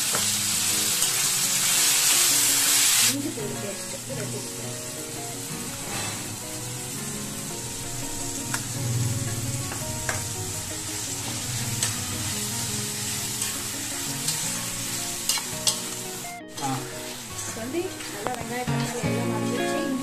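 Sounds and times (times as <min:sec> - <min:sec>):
vegetables sizzling in oil: 0:00.0 - 0:20.0
metal ladle scraping a pan: 0:05.8 - 0:06.4.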